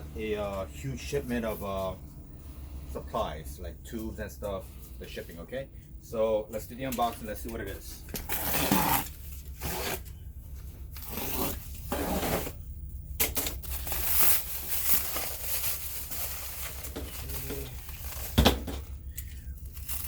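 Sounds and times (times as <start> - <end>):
packaging ripping and crinkling: 8.2 - 10.2, 10.9 - 12.5, 13.2 - 20.0.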